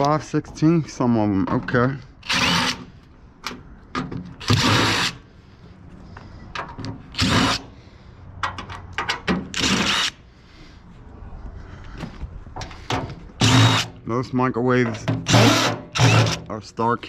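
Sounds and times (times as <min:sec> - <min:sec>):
cordless drill driving screws: 0:02.2 - 0:02.9, 0:04.4 - 0:05.2, 0:07.2 - 0:07.7, 0:09.5 - 0:10.2, 0:13.4 - 0:13.9, 0:15.3 - 0:16.4.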